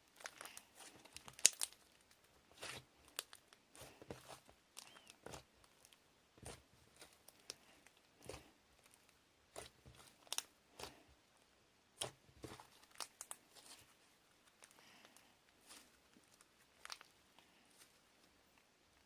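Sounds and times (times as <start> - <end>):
faint crunching and rustling clicks: 12.0 - 19.0.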